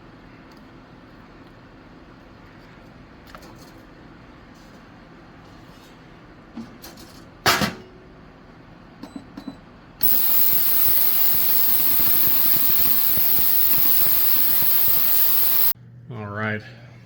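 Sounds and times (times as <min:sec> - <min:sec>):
loud steady hiss: 0:10.0 - 0:15.8.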